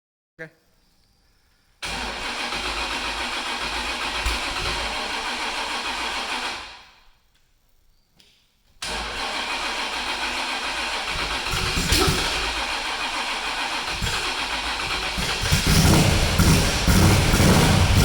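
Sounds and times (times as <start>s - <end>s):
engine starting and stopping: 1.8s - 7.0s, 8.8s - 18.0s.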